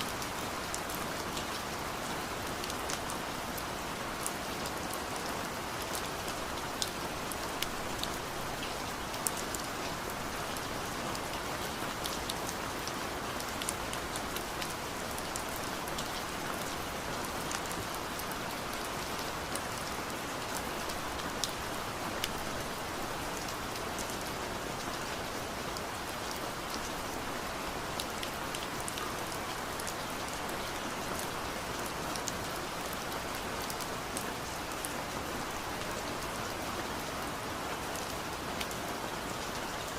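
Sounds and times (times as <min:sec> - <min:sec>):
rain falling with ticking drops: 0:00.0 - 0:39.9.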